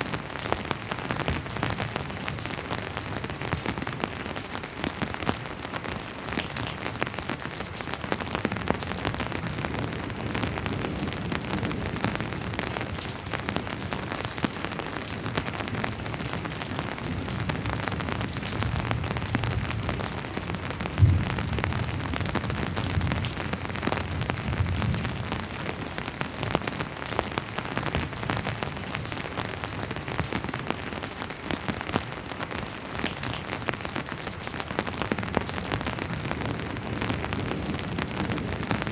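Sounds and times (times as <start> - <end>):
steady rain falling: 0.0 - 38.9
distant thunder rumble: 20.8 - 25.2.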